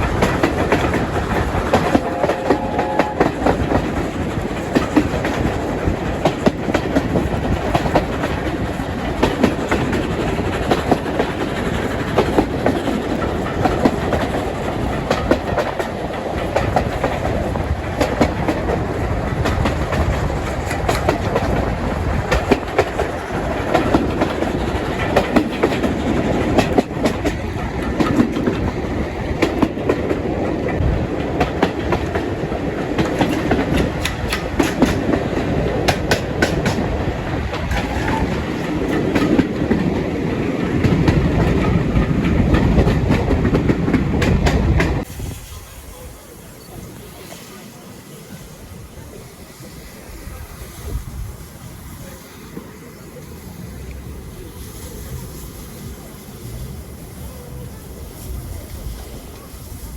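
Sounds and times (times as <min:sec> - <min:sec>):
wheels clacking over rail joints: 0:00.0 - 0:47.6
train wheels rumbling on rails: 0:00.0 - 0:59.9.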